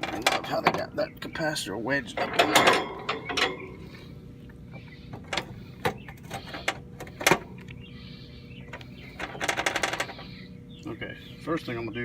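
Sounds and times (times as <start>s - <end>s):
hand tools clicking and knocking: 0.0s - 0.9s, 2.2s - 3.8s
rattling clicks: 2.2s - 3.8s.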